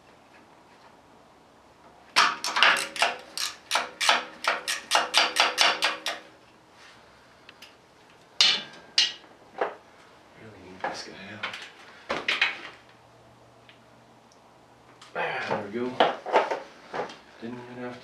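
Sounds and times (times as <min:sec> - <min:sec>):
hammer striking metal: 0:02.2 - 0:06.3, 0:08.4 - 0:09.2.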